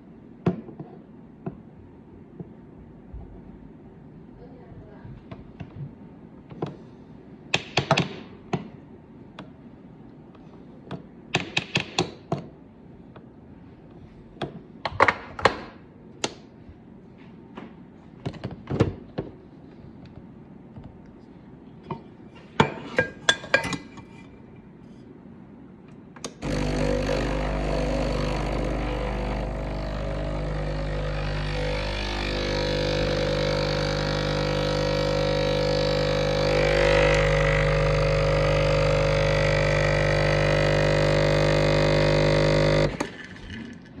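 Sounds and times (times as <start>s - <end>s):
coffee grinder grinding: 26.4s - 43.8s.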